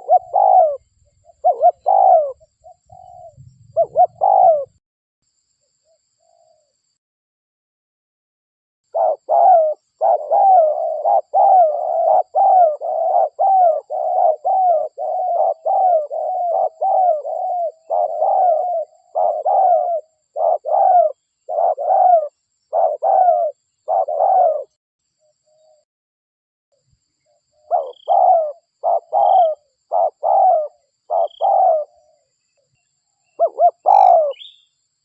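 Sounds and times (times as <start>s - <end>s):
dove cooing: 0.0s - 4.8s, 8.9s - 24.8s, 27.3s - 32.3s, 33.3s - 34.6s.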